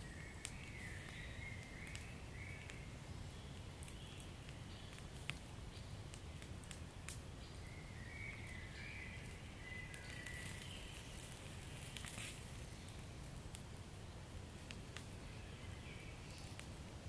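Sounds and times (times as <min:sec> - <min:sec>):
hissing whistle from burning wood: 0:00.0 - 0:05.2, 0:07.0 - 0:13.3
wood fire crackling and popping: 0:00.0 - 0:17.0.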